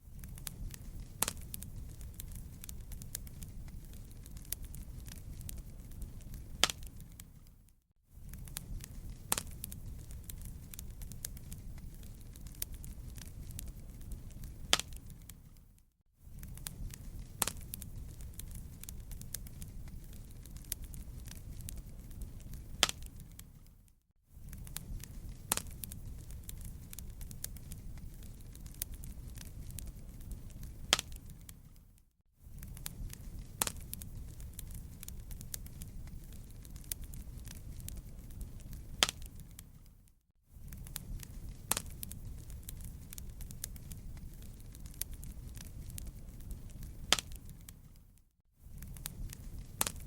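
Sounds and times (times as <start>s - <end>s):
fire popping: 0.0s - 50.0s
fire rumbling: 0.0s - 50.0s
wood fire crackling: 0.0s - 50.0s.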